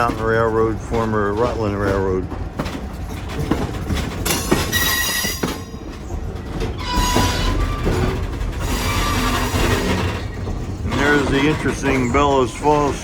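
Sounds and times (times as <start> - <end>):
wheels rumbling and clicking on track: 0.0 - 13.0
train wheels squealing: 4.3 - 12.6.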